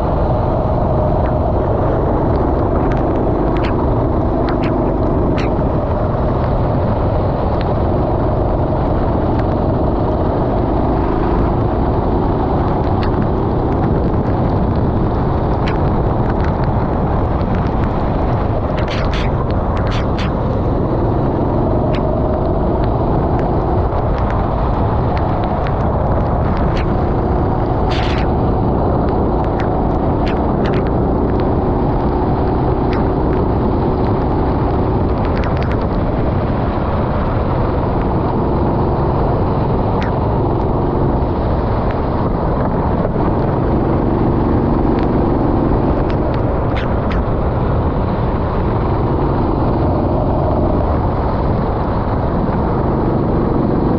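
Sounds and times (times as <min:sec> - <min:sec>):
rushing noise: 0:00.0 - 0:53.6
go-kart engine racing: 0:00.0 - 0:53.9
sharp clicks: 0:02.3 - 0:05.8, 0:17.4 - 0:21.0, 0:25.1 - 0:31.5, 0:35.2 - 0:35.9, 0:45.9 - 0:47.3.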